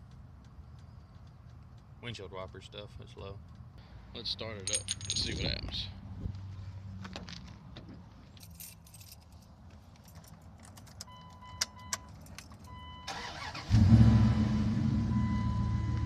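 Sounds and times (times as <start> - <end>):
keys jingling: 4.6 - 5.6, 8.3 - 12.8.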